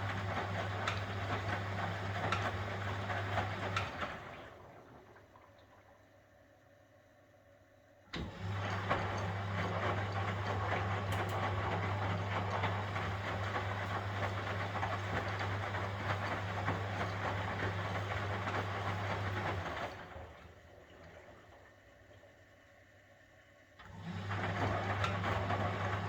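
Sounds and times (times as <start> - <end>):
washing machine motor hum: 0.0 - 6.0, 8.1 - 22.8, 23.8 - 26.0
washing machine drum clatter: 8.6 - 19.9.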